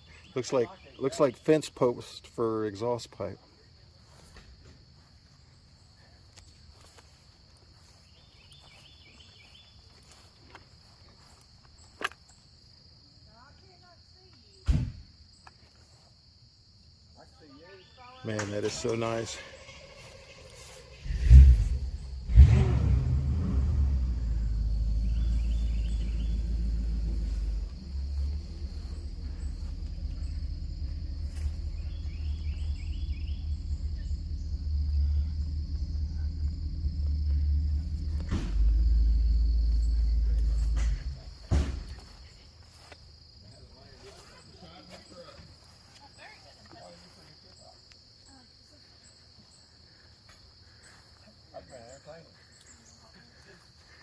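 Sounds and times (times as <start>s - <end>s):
idling car engines: 0.0s - 11.6s, 18.4s - 47.3s
crickets trilling: 0.0s - 54.0s
high-pitched insect chorus: 0.0s - 54.0s
short rising chirps: 19.2s - 41.5s
low background rumble: 19.5s - 42.4s.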